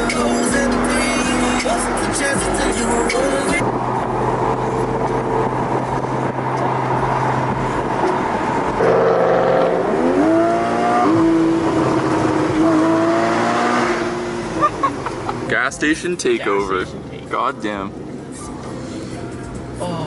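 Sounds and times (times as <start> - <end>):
car engine accelerating hard: 0.0 - 15.4
rumble of other engines: 0.0 - 20.0.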